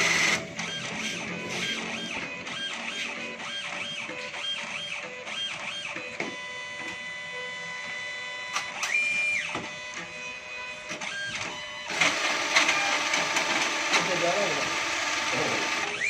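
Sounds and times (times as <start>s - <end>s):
coconut grating machine motor whine: 0.0s - 16.0s.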